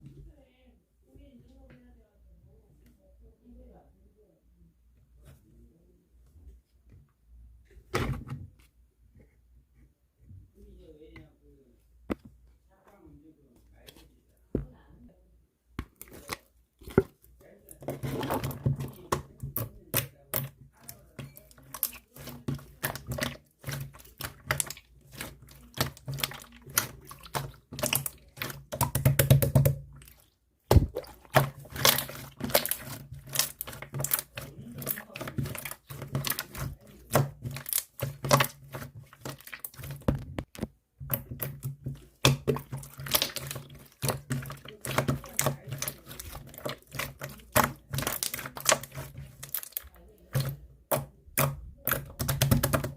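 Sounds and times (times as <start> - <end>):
slime squished by hand: 15.8 - 52.9.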